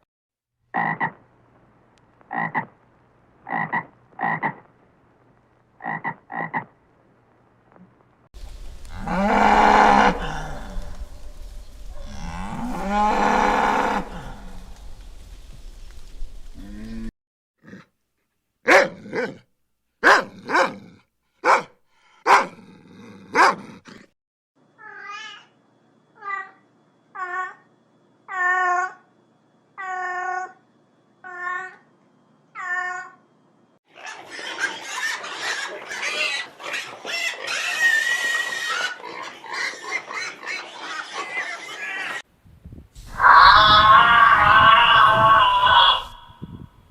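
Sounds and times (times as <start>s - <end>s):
animal calls: 33.9s - 42.2s, 43.1s - 46.6s.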